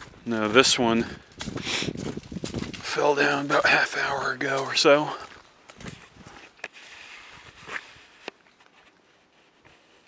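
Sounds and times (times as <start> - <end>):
faint outdoor hiss: 2.8 - 10.0.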